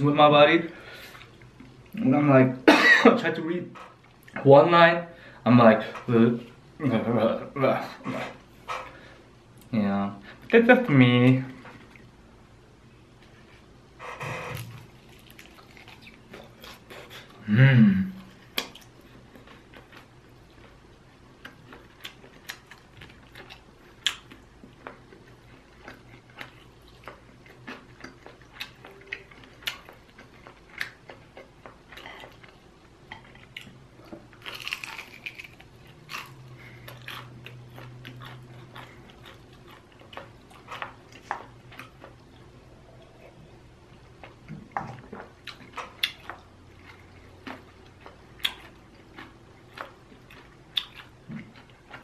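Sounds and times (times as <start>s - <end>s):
chewing chicken wings: 21.4s - 42.5s, 43.9s - 52.0s.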